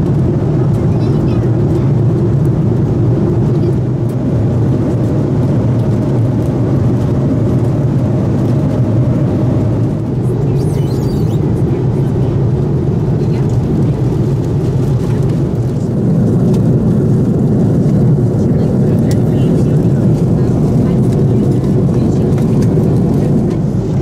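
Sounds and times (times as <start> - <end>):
airplane cabin rumble: 0.0 - 24.0.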